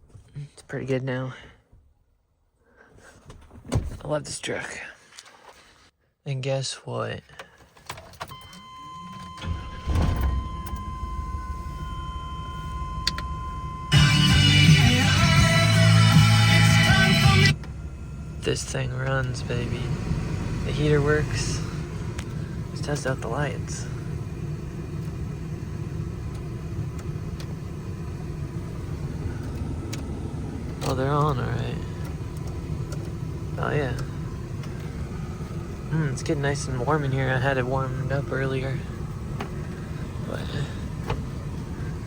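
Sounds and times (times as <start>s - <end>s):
truck engine starting and idling: 8.3s - 42.0s
steady high tone: 9.4s - 24.3s.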